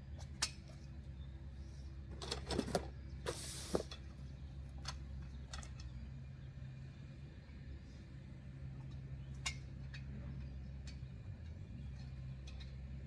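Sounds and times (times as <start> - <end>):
short scraping hiss: 3.3 - 4.0.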